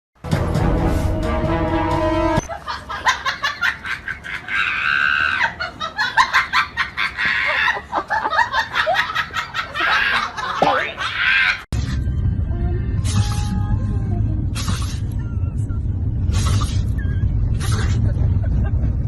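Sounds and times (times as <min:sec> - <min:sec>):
people laughing: 0:02.4 - 0:11.7, 0:17.6 - 0:19.0.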